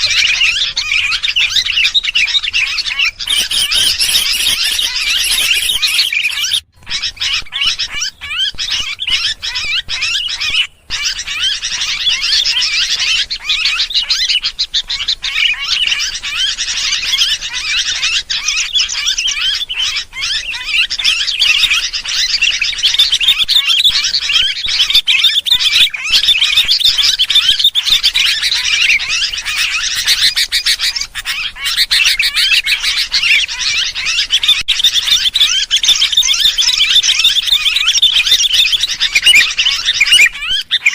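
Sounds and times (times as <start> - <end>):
bulbuls chattering chorus: 0.0 - 40.9.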